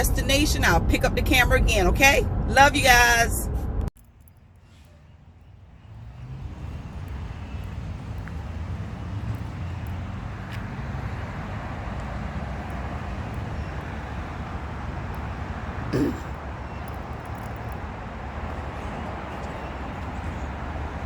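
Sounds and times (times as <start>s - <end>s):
truck road and engine rumble: 0.0s - 21.0s.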